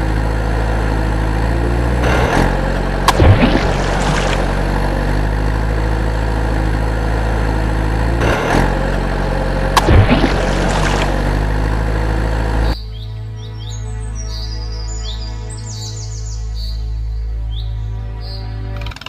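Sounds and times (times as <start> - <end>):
truck engine idling: 0.0 - 12.8
loud burst of noise: 2.0 - 5.5, 9.7 - 12.8
birds chirping: 12.4 - 18.8.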